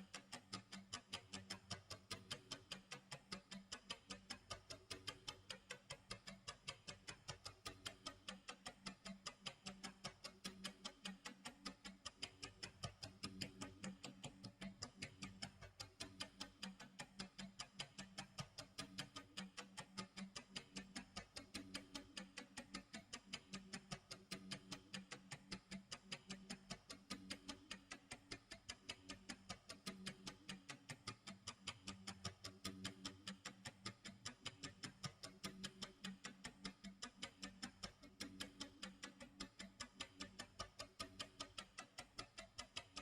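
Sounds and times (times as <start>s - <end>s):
clock ticking: 0.0s - 43.0s.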